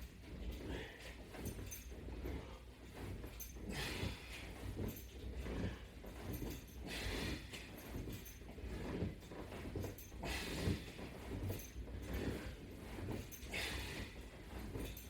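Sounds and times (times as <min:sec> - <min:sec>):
man breathing hard: 0:13.4 - 0:14.2.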